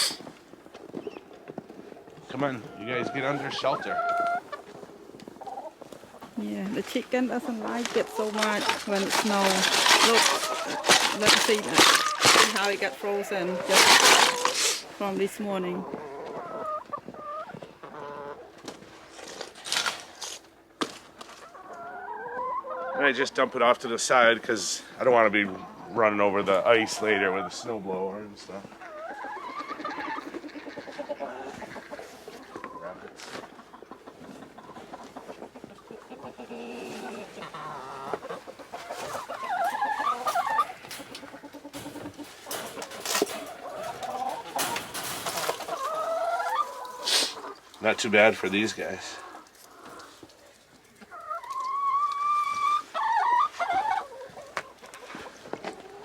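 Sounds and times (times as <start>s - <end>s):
chickens clucking: 0.0s - 56.0s
scraping: 6.8s - 15.0s, 38.1s - 48.6s.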